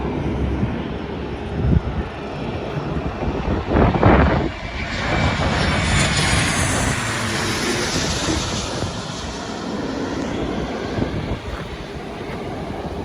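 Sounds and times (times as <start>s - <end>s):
jet engines rumbling: 0.0s - 13.0s
jet hiss: 5.0s - 13.0s.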